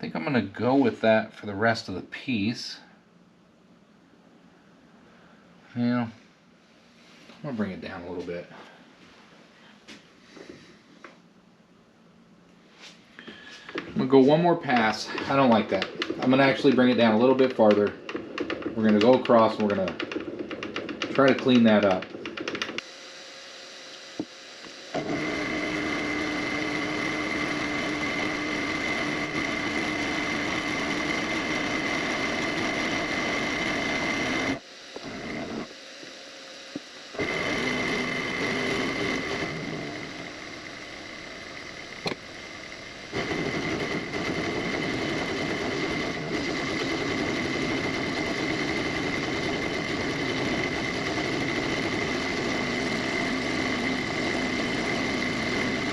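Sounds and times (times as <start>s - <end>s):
machine tool whining: 13.2s - 55.9s.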